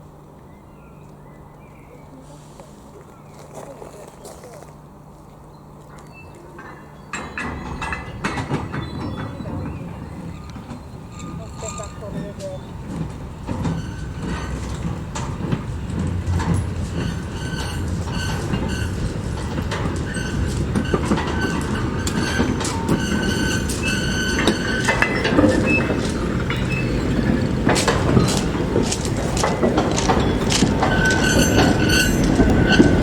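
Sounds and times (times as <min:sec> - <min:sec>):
train wheels clicking over rail joints: 0:03.4 - 0:33.0
high-pitched wheel squeals: 0:07.2 - 0:15.4, 0:16.0 - 0:27.6, 0:30.2 - 0:33.0.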